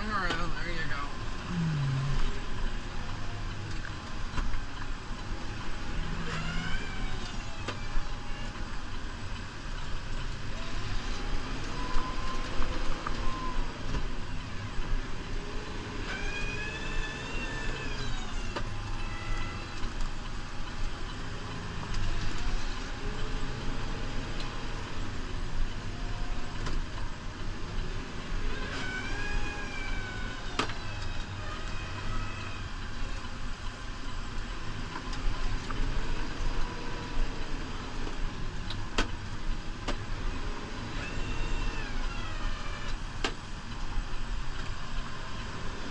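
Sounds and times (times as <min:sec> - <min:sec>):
rising and falling whine: 0:01.1 - 0:02.7.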